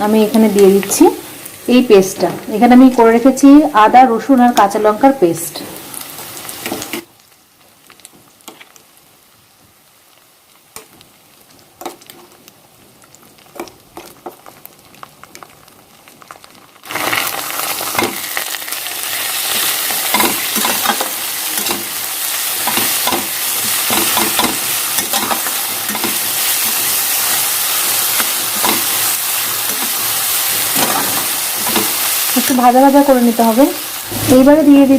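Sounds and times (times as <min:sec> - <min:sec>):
loud frying sizzle: 0:00.0 - 0:34.9
spoon scraping and clicking in pan: 0:20.0 - 0:21.9, 0:22.6 - 0:27.4.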